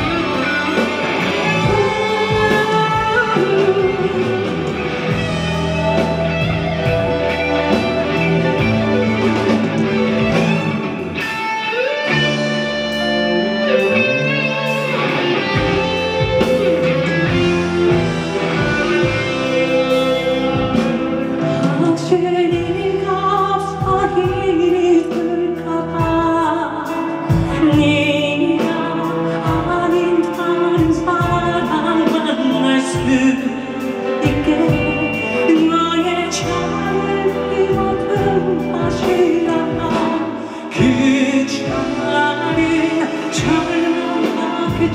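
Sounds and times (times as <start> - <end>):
live band playing pop ballad: 0.0 - 44.9.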